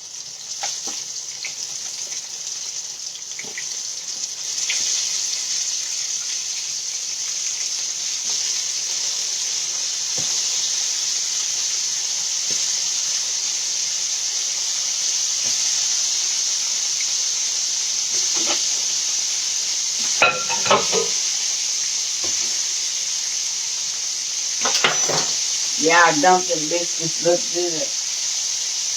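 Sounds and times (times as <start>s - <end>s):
chicken deep-frying in oil: 0.0s - 28.9s
pans and utensils clinking: 18.2s - 19.0s, 20.0s - 21.4s, 24.6s - 25.6s.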